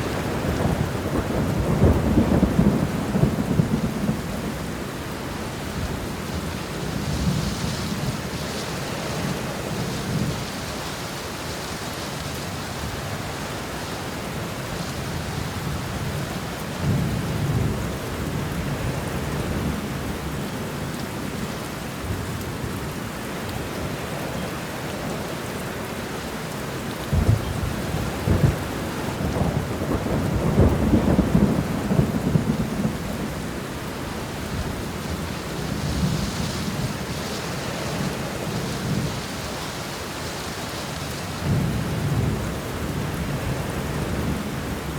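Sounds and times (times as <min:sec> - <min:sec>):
thunder rumbling and cracking: 0:00.0 - 0:04.9, 0:27.1 - 0:39.5, 0:41.4 - 0:44.9
heavy rain: 0:00.0 - 0:44.9.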